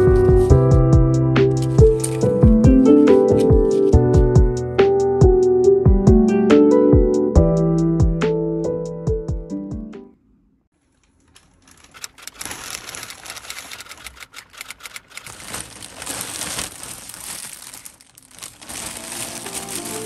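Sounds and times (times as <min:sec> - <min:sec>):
soft music: 0:00.0 - 0:10.2, 0:18.4 - 0:20.0
plastic packaging crinkling: 0:01.6 - 0:04.0, 0:10.8 - 0:20.0.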